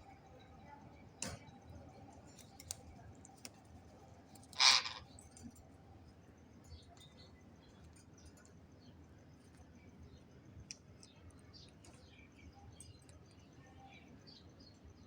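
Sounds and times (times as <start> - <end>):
faint clicks: 2.2 - 3.7.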